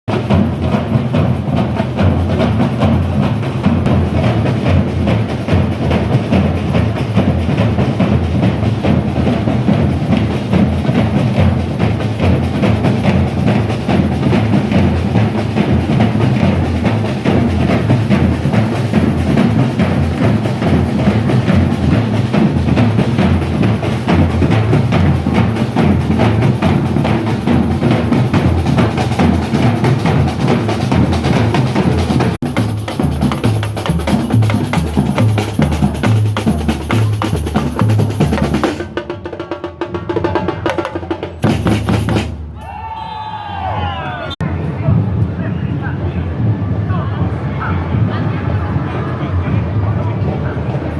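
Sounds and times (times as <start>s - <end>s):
fast continuous drumming: 0.1s - 42.4s.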